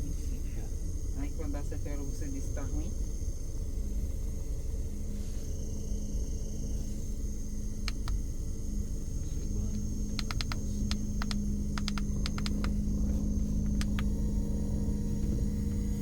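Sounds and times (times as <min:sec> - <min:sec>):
electric fan humming: 0:00.0 - 0:16.0
sharp clicks: 0:07.9 - 0:08.2, 0:10.1 - 0:12.8, 0:13.7 - 0:14.1.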